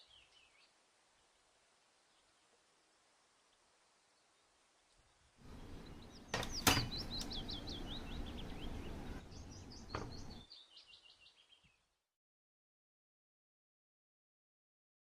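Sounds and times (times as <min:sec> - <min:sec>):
small bird chirping: 0:00.0 - 0:00.8, 0:03.5 - 0:11.9.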